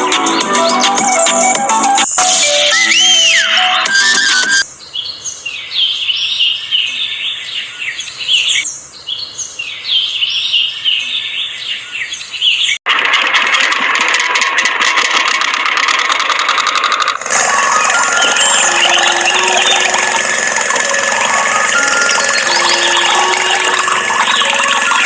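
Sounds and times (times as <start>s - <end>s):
birds chirping: 0.3s - 12.8s, 17.2s - 25.0s
small motor rattling buzz: 13.2s - 25.0s.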